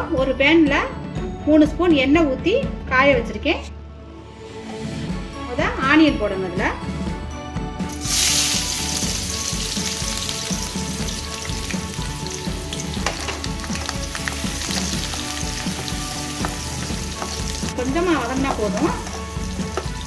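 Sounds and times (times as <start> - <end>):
onions sizzling in hot oil: 12.7 - 17.7.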